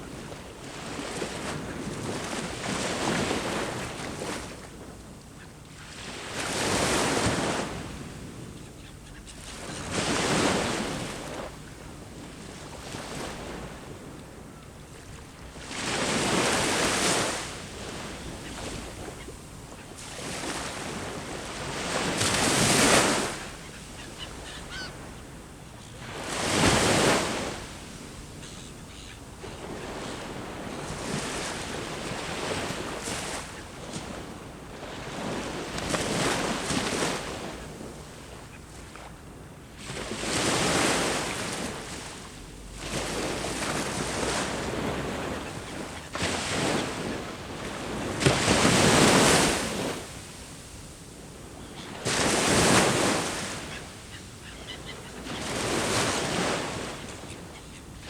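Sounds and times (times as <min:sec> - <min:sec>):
sea waves breaking: 0:15.0 - 0:25.3, 0:39.8 - 0:50.7, 0:51.9 - 0:57.6.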